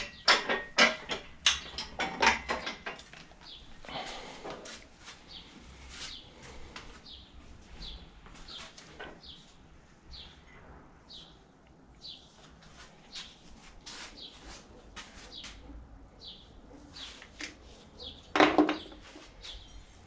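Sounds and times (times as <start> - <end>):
bird chirping: 16.2 - 17.2.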